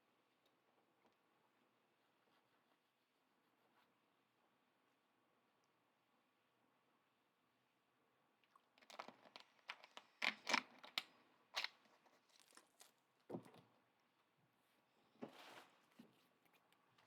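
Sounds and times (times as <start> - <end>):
card packaging torn and crinkled: 8.8 - 13.0.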